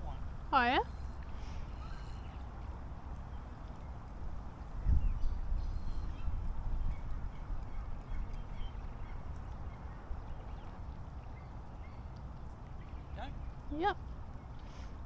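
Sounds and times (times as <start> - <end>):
faint bird chirps: 0.0 - 2.4, 4.8 - 12.2
wind rumbling on microphone: 0.0 - 15.0.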